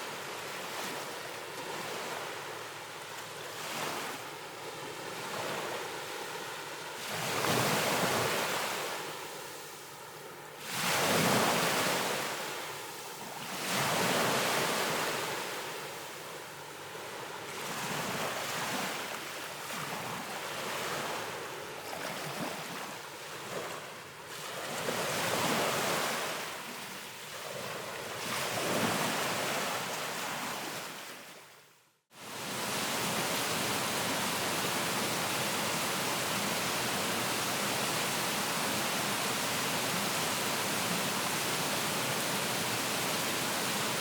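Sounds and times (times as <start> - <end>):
wind: 0.0 - 44.0
ocean waves washing: 32.1 - 44.0.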